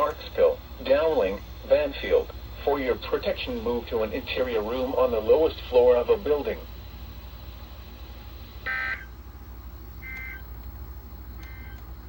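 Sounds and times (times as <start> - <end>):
buzzy two-tone data bursts: 8.6 - 9.1.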